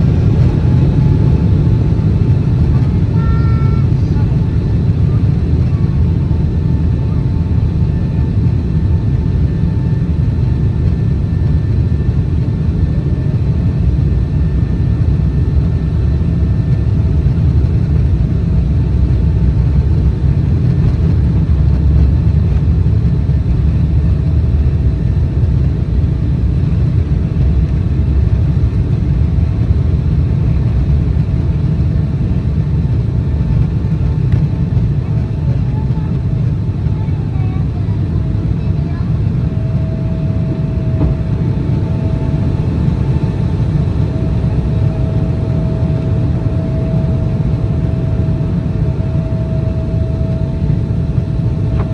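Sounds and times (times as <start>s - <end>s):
faint engine whine: 0.0s - 51.9s
jet engines deep rumble in cabin: 0.0s - 51.9s.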